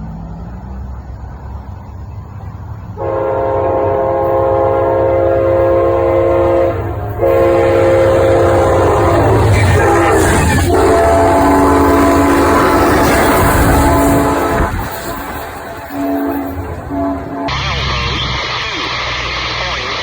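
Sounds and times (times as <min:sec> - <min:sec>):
train rumbling: 0:00.0 - 0:20.0
train horn chord: 0:03.0 - 0:18.6.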